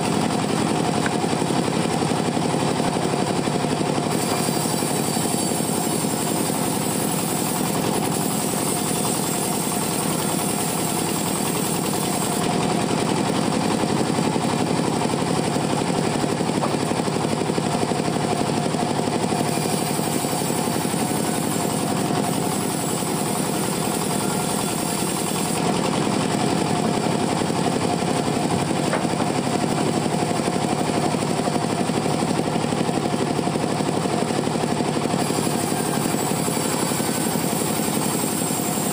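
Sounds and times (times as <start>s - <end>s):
chainsaw cutting wood: 4.0s - 27.7s, 28.4s - 29.8s, 35.2s - 38.9s.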